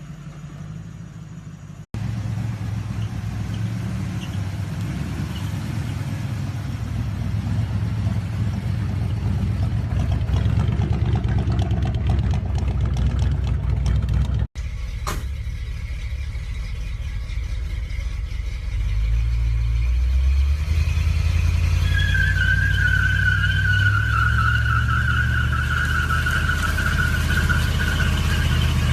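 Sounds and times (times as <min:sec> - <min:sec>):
pickup truck engine rumbling: 0:00.0 - 0:28.9
truck engine running: 0:00.0 - 0:28.9.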